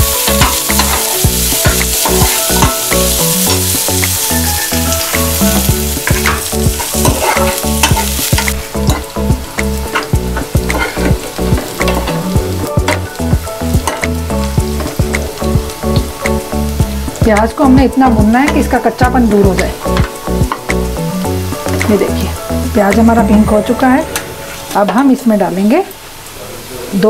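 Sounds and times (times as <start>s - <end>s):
onions sizzling in a pan: 0.0s - 27.0s
ladle scraping a metal pan: 4.3s - 9.1s.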